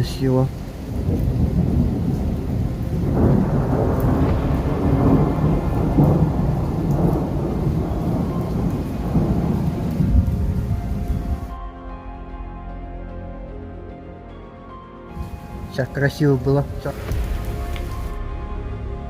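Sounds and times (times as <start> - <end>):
rain falling: 0.0 - 11.6, 15.1 - 18.3
thunder rumbling: 0.0 - 11.6, 15.1 - 19.0.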